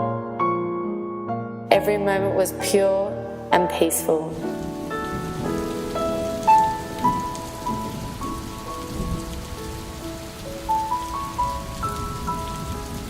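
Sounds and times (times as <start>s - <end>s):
gentle instrumental music: 0.0s - 13.0s
steady rain: 4.3s - 13.0s.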